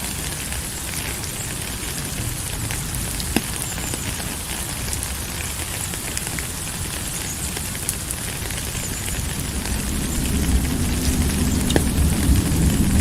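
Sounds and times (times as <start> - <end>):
rain falling: 0.0 - 13.0
sharp raindrop ticks: 0.0 - 13.0
low rumble: 9.2 - 13.0.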